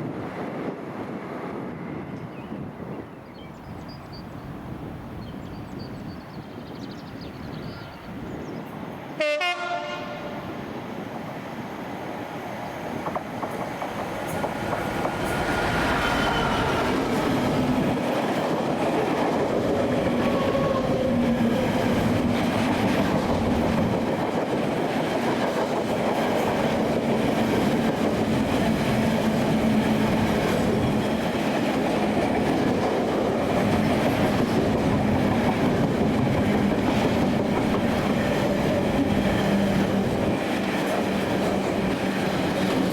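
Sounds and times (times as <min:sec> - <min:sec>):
train passing: 0:00.0 - 0:42.9
train horn blast: 0:09.2 - 0:10.5.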